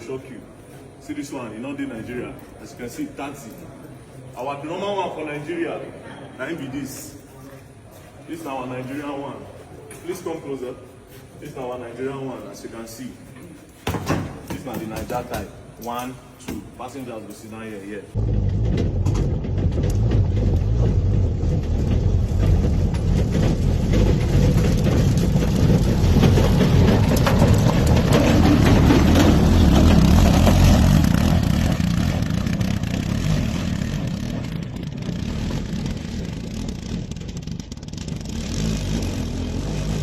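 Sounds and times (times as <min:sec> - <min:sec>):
motor tricycle engine rumbling: 0:18.1 - 0:40.0.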